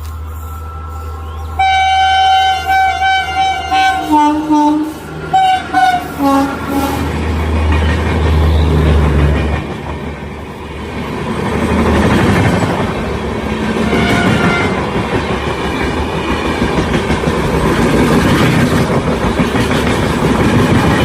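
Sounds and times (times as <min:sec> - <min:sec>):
train horn blasts: 0:00.1 - 0:07.2, 0:13.8 - 0:14.9
train wheels rumbling and clattering: 0:04.8 - 0:21.0.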